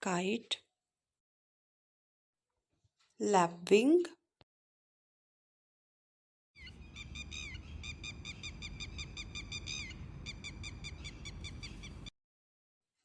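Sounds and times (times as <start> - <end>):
bird calling shrill notes: 6.6 - 12.1
low background rumble: 6.8 - 12.1.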